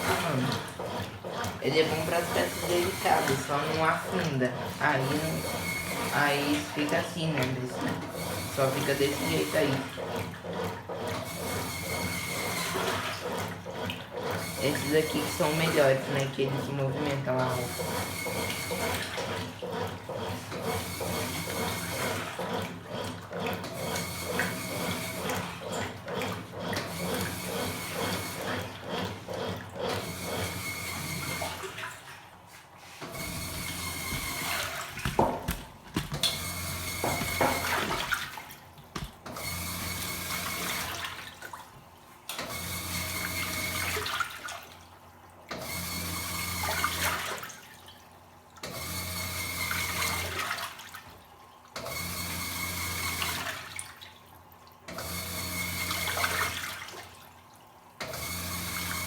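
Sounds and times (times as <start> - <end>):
water sloshing: 0.0 - 11.2, 31.4 - 42.2
washing machine motor agitating: 0.0 - 59.0.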